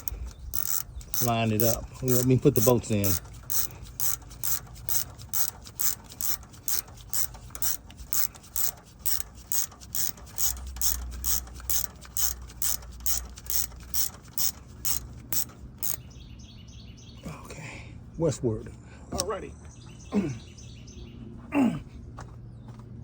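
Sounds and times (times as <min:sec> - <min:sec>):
hand ratchet clicking: 0:00.0 - 0:16.0.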